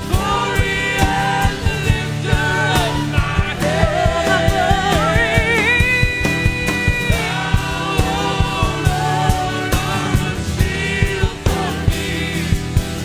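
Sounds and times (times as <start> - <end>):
person singing: 0.0 - 12.7
band playing worship song: 0.0 - 13.0
bass: 0.0 - 13.0
drum beat: 0.0 - 13.0.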